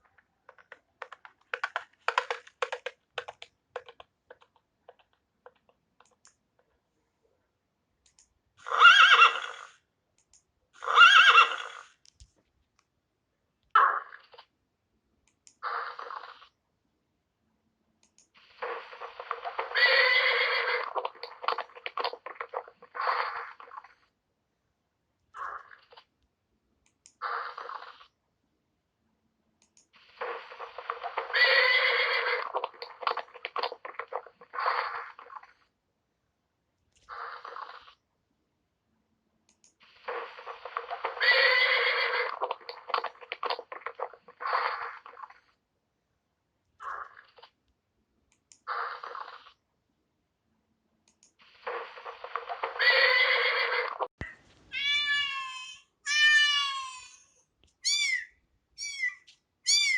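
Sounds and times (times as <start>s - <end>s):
horse whinnying: 8.6s - 9.8s, 10.8s - 11.9s, 18.7s - 23.8s, 30.3s - 35.2s, 40.2s - 45.1s, 51.9s - 54.1s.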